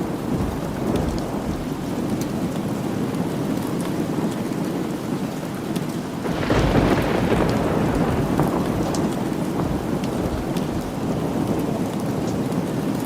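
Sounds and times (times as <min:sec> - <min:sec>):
thunder rolling: 0:00.0 - 0:02.7, 0:06.2 - 0:11.9
steady rain: 0:00.0 - 0:13.0.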